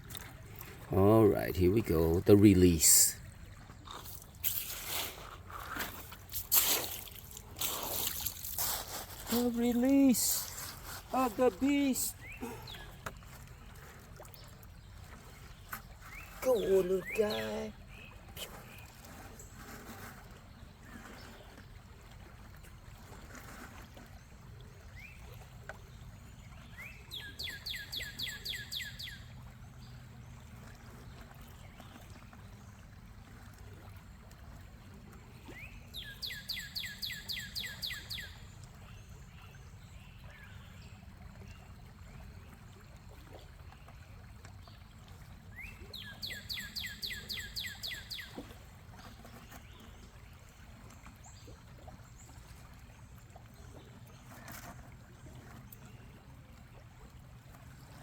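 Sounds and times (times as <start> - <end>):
songbird singing: 5.8 - 14.6, 15.4 - 18.9, 26.5 - 29.3, 35.5 - 40.8, 45.5 - 50.4.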